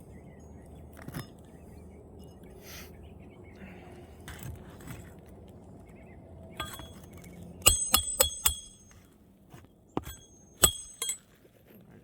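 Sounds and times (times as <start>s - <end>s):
hatchet hammering nail: 7.6s - 9.0s, 10.0s - 11.2s.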